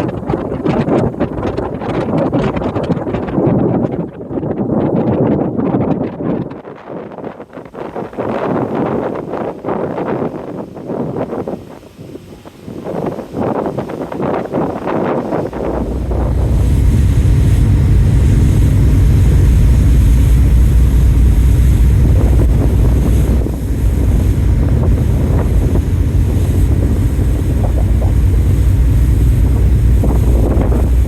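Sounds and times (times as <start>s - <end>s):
rushing sea: 0.0s - 31.0s
wind buffeting microphone: 0.0s - 31.0s
loud steady low rumble: 15.1s - 31.0s.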